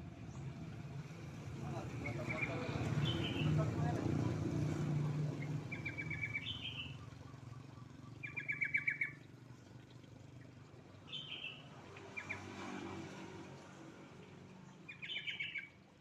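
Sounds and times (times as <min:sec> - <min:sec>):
bulbul chattering call: 0:05.4 - 0:09.3.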